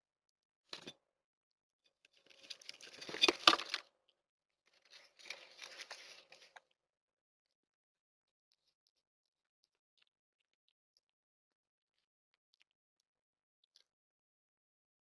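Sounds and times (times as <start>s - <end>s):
rustling tearing noise: 4.8s - 6.6s.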